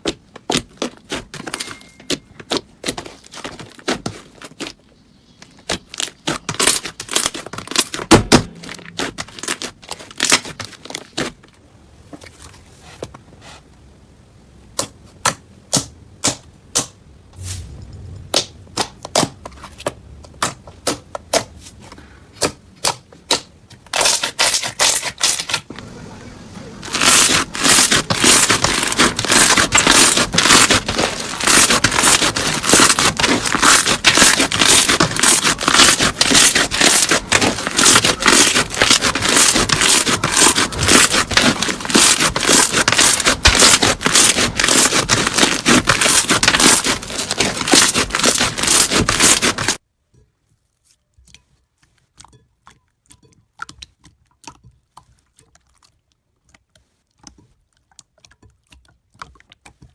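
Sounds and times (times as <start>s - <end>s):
slime crackling and scraping: 0.0s - 11.6s, 17.4s - 25.7s, 26.6s - 49.8s.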